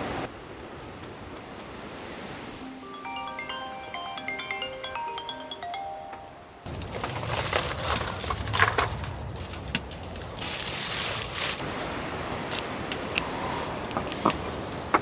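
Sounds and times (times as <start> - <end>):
soft mallet instrument music: 2.7 - 6.7
low rumble: 6.7 - 11.6
rustling and crunching: 6.7 - 15.0.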